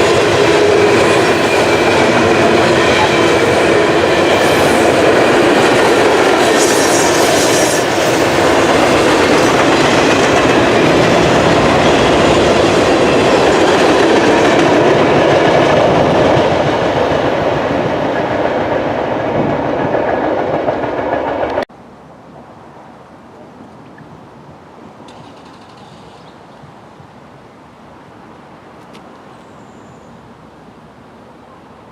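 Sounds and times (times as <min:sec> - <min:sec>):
freight train wheels on rails: 0:00.0 - 0:21.7.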